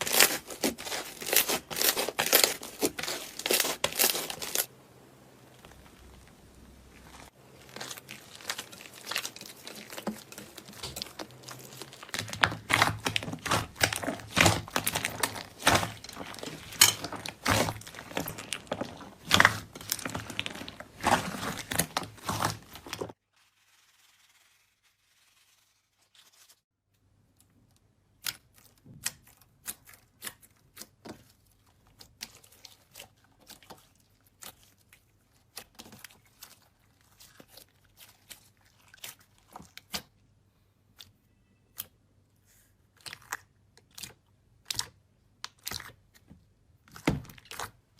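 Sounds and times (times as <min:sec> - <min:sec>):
slime crackling and popping: 0:00.0 - 0:04.7, 0:05.5 - 0:23.2.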